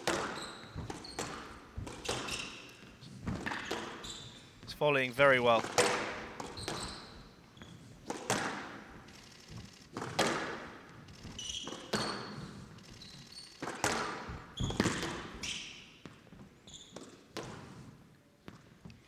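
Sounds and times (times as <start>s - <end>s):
shoes squeaking on court floor: 0.0s - 4.6s, 5.6s - 8.1s, 11.1s - 13.6s.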